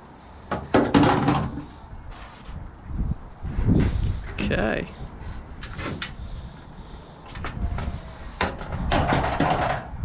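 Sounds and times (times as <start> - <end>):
sheet metal clicks and knocks: 8.4 - 9.9.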